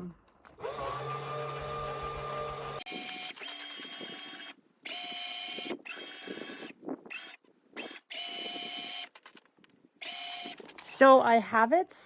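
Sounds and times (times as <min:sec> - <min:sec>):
electric motor whine: 0:00.6 - 0:09.1.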